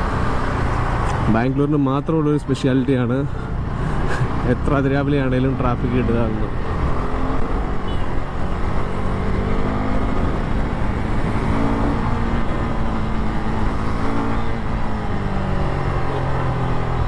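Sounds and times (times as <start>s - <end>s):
motorcycle engine revving: 3.6s - 17.0s.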